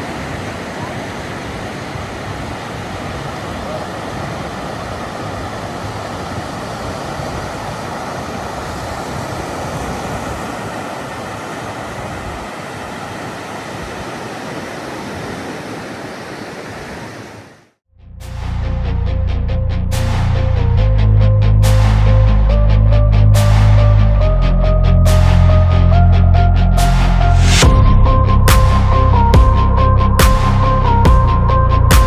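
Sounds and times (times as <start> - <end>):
surf washing onto beach: 0.0 - 17.6.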